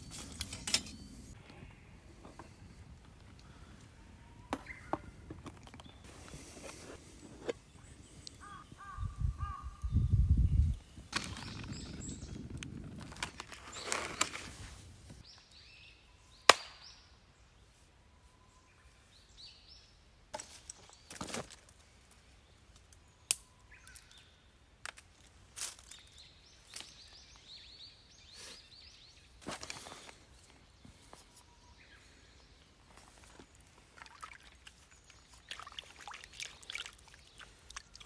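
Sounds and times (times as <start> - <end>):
small birds chirping: 0.0 - 17.0, 25.8 - 38.0
rustling handling noises: 5.0 - 8.6, 12.9 - 15.2, 29.4 - 31.5.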